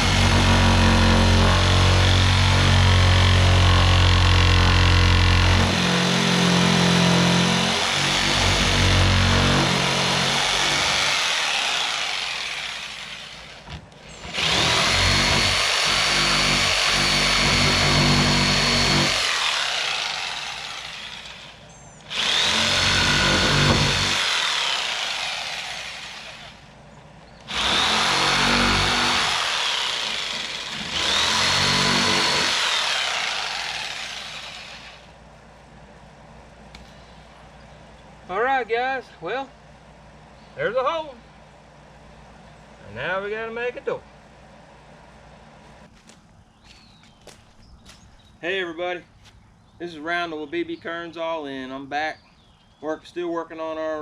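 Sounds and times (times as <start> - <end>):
power saw cutting wood: 0.0 - 26.7, 27.4 - 35.2.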